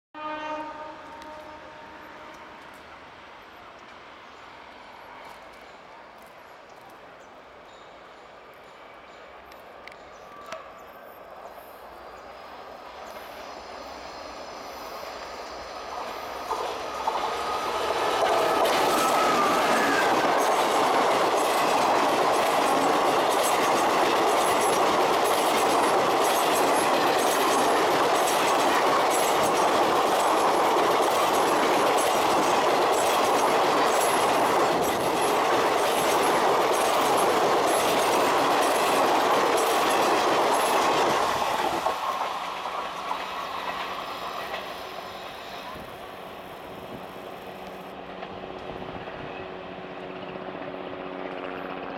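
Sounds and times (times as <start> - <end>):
train wheels rushing on rails: 0.8 - 51.9
clickety-clack over rail joints: 15.2 - 46.0.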